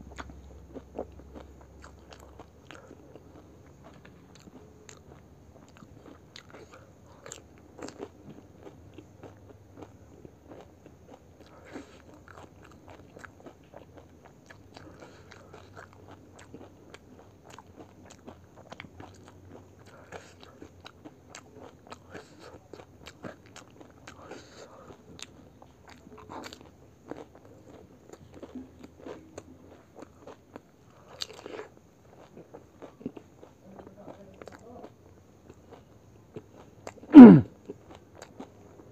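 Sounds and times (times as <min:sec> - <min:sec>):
crisp food crunching while chewing: 0:00.1 - 0:38.9.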